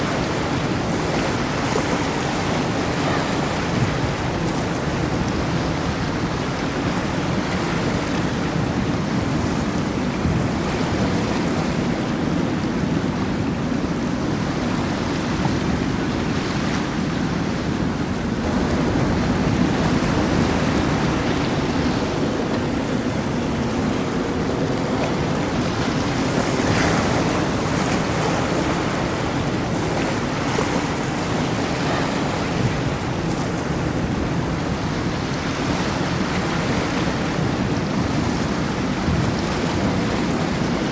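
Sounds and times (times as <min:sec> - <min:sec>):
wind buffeting microphone: 0:00.0 - 0:40.9
surf rushing: 0:18.2 - 0:40.9.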